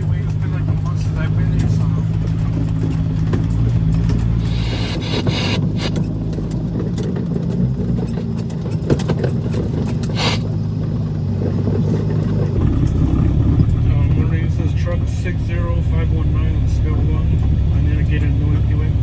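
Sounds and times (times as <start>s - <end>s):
diesel truck engine running: 0.0s - 19.0s
clicks: 1.6s - 6.1s
short air hisses: 4.4s - 6.0s, 10.0s - 10.5s.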